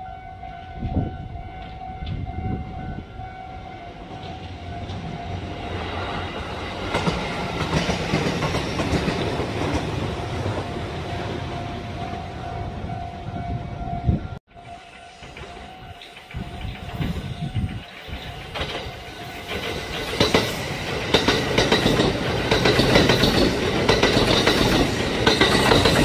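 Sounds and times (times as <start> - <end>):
electric train passing: 0.0 - 26.0
train wheel clatter: 5.7 - 10.8, 14.6 - 26.0
steady high ringing tone: 10.7 - 20.8.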